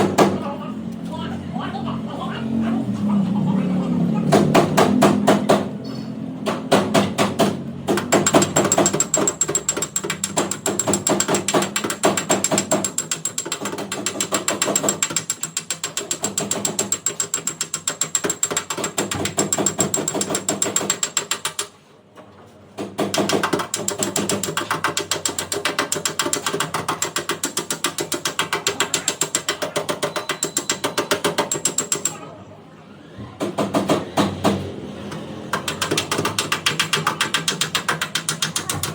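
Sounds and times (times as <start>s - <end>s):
rapid mechanical clicking: 6.7s - 21.8s, 22.8s - 32.2s, 33.5s - 38.9s.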